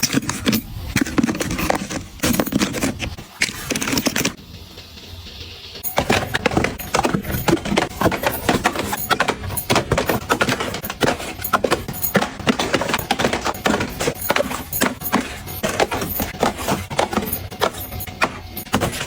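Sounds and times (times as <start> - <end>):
small items clicking and tapping: 0.0 - 4.4, 5.8 - 19.0.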